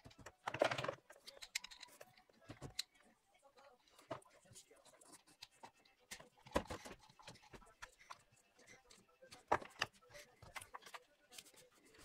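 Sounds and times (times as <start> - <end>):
tools and parts clicking: 0.1 - 3.0.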